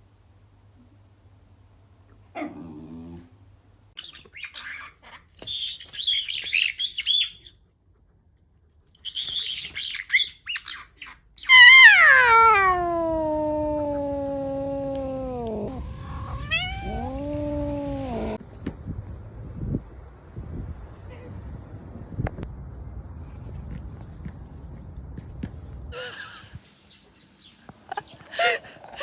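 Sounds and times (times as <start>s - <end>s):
high quivering chirps and squawks: 11.4s - 18.4s
cat yowling: 11.5s - 18.4s.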